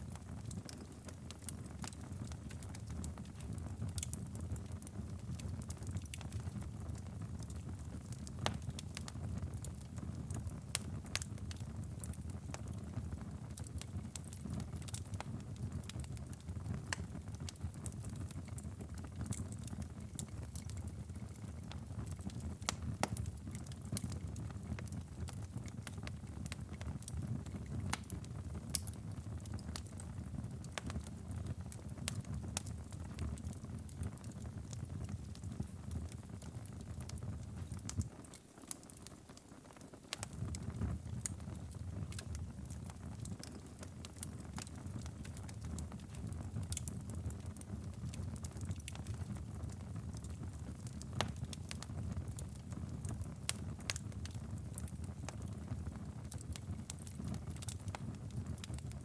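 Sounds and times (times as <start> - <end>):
wood fire crackling: 0.0 - 59.0
sharp pops of fire: 16.7 - 19.4, 21.6 - 58.9.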